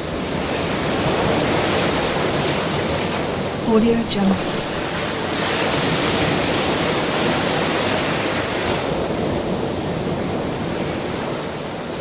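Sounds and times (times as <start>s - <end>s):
ocean wave breaking: 1.0s - 9.0s.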